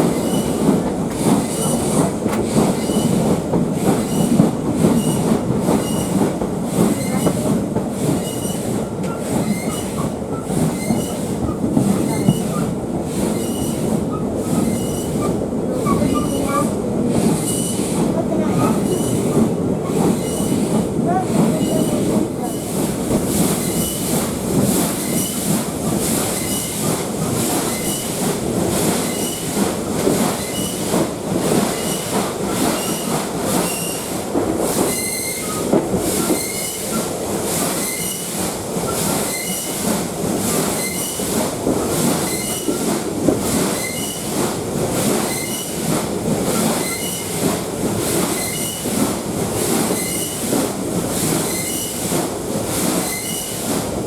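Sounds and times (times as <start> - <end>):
steam locomotive exhaust beats: 0.0 - 54.0
metallic squeal: 8.3 - 11.2, 13.4 - 16.7.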